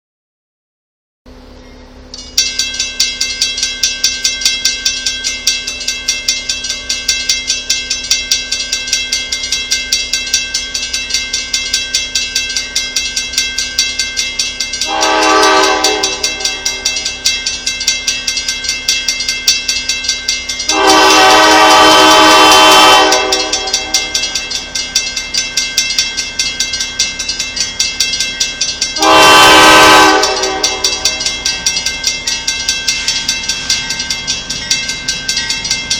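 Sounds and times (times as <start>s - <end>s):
train wheels clicking: 2.1s - 35.9s
locomotive air horn blasts: 14.8s - 16.8s, 20.7s - 24.0s, 29.0s - 31.3s.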